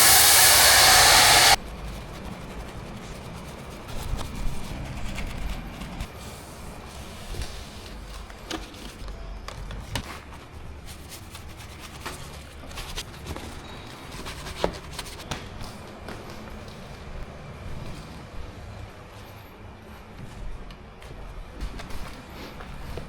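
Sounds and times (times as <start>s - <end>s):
car wash equipment hissing: 0.0s - 1.6s.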